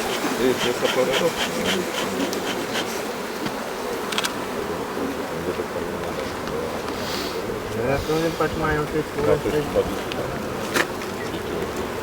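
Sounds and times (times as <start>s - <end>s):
honeybees buzzing: 0.0s - 12.0s
single click: 4.1s - 4.4s.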